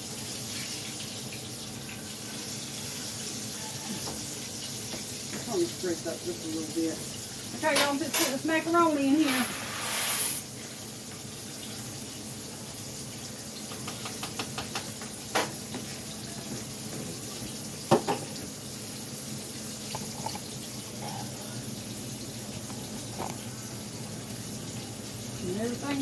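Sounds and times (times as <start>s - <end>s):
water boiling in a pot: 0.0s - 26.0s
utensil clinking on pot: 7.6s - 8.6s.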